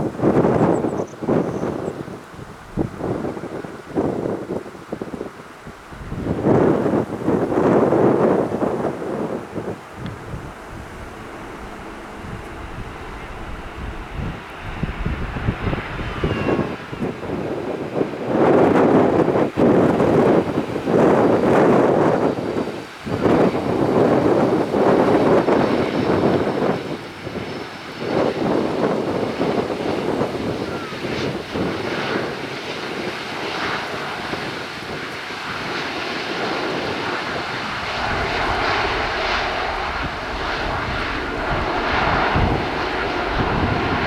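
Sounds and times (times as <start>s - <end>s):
jet engines rushing: 0.0s - 44.0s
steady hum: 8.5s - 16.2s.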